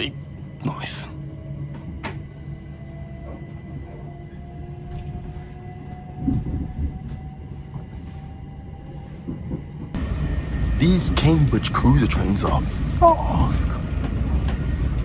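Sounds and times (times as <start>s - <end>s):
wheels rumbling on track: 1.4s - 15.0s
rising traction whine: 10.0s - 15.0s.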